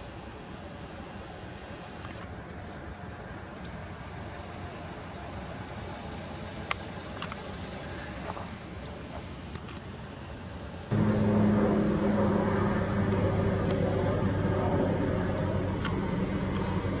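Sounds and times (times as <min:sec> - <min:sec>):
faint outdoor background: 0:00.0 - 0:17.0
car engine idling: 0:10.9 - 0:17.0.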